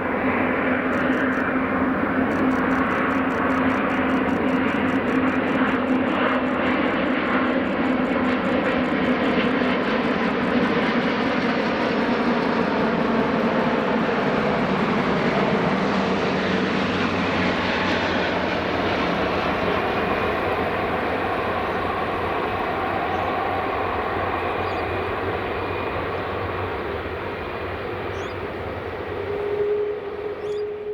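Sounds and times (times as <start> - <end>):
jet engines running: 0.0 - 30.9.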